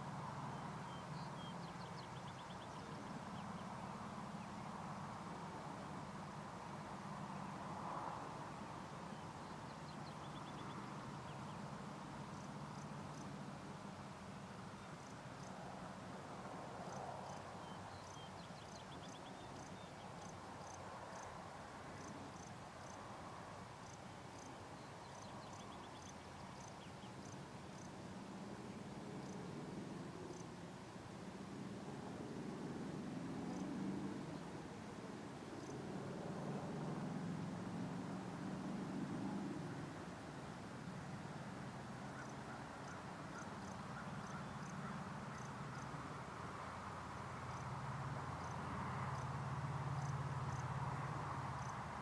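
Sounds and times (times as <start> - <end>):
songbird singing: 0.0 - 15.6, 16.8 - 23.1, 23.8 - 30.6, 33.3 - 35.0, 35.6 - 35.8, 40.8 - 52.0
small birds chirping: 0.5 - 4.8, 9.1 - 11.7.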